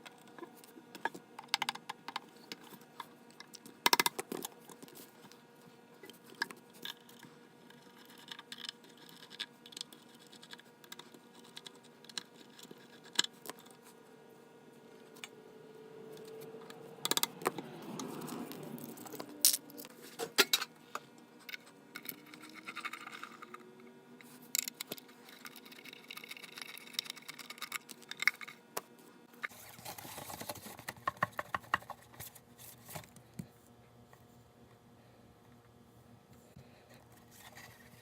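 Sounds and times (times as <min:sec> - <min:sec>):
small parts clicking and tapping: 0:00.0 - 0:04.9, 0:16.2 - 0:23.6, 0:24.5 - 0:32.0.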